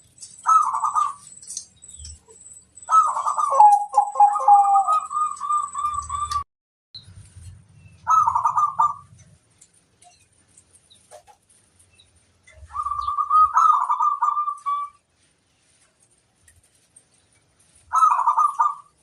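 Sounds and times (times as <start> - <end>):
dove cooing: 0.4 - 1.4, 2.9 - 6.4, 8.0 - 9.2, 12.5 - 15.0, 17.9 - 18.9.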